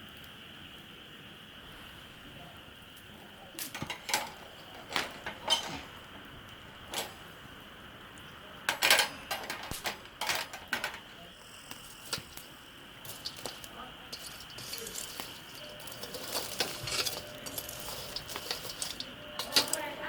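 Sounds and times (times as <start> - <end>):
cookware and utensils clinking: 3.6 - 6.1, 6.8 - 7.2, 8.6 - 20.0.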